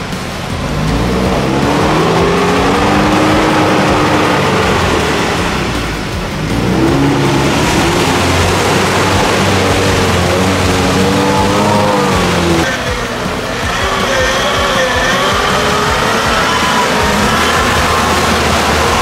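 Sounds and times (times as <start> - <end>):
off-road engine revving: 0.0 - 19.0.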